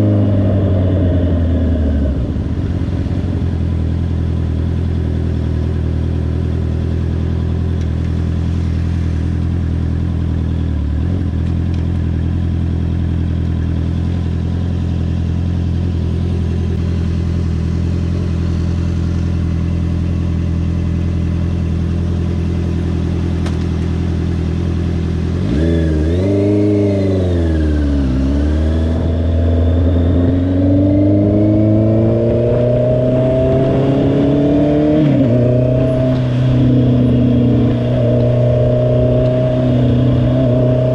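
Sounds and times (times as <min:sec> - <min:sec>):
motorcycle engine running and revving: 0:00.0 - 0:40.9.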